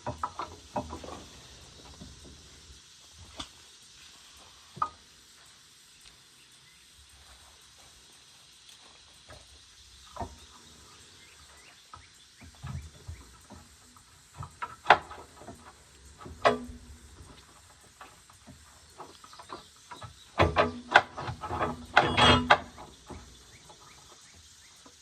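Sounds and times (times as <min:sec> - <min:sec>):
loud ringing metal clanks: 0:20.4 - 0:22.9.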